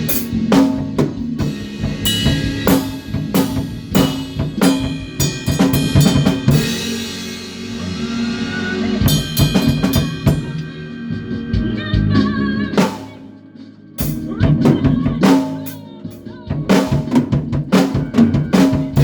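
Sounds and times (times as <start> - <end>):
loud ringing drum hit: 0.0 - 8.2, 9.0 - 10.6
bass guitar: 0.0 - 13.3, 14.0 - 19.0
drum kit playing: 0.0 - 19.0.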